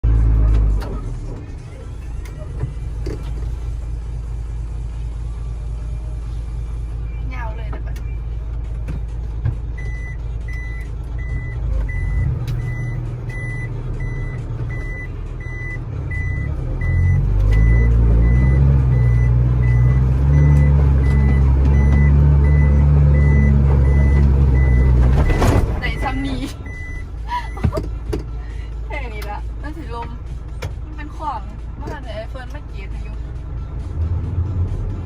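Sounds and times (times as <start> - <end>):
truck engine running: 0.0 - 35.0
reversing alarm beeping: 9.8 - 27.7.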